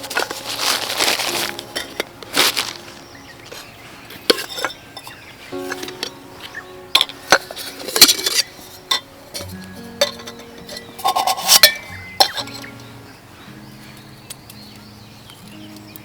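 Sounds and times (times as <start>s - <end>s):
tableware clinking: 0.0s - 12.8s
background music of held notes: 0.0s - 16.0s.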